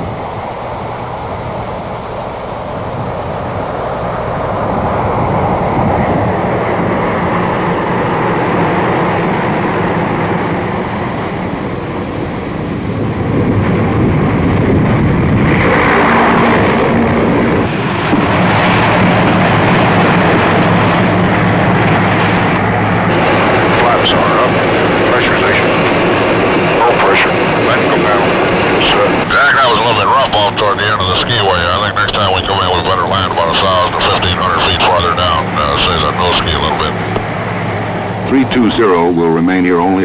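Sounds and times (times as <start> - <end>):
turboprop aircraft engines: 0.0 - 40.0.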